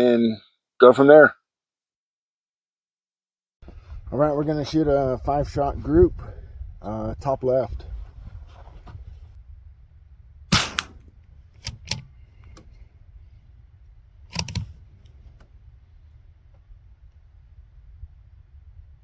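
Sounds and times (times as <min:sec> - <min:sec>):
suppressed rifle shots: 0:10.5 - 0:11.1.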